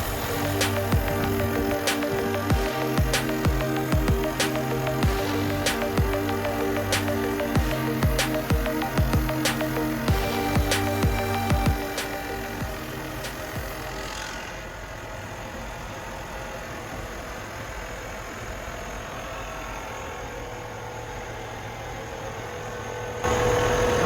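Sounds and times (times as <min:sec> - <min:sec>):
air compressor humming: 0:00.0 - 0:14.7.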